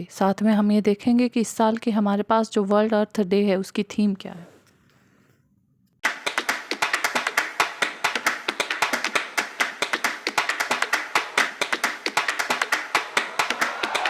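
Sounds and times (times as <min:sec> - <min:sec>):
fast tapping percussion music: 0:06.0 - 0:14.0.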